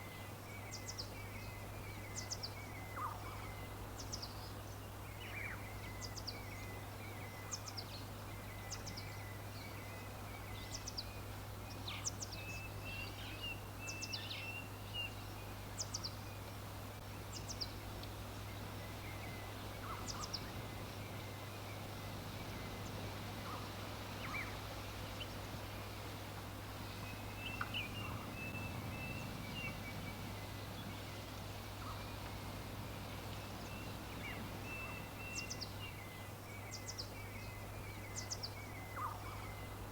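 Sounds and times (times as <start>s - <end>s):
background hiss and low hum: 0.0s - 39.9s
songbirds chirping: 0.0s - 39.9s
low warbling bird calls: 18.8s - 24.6s, 26.8s - 39.8s.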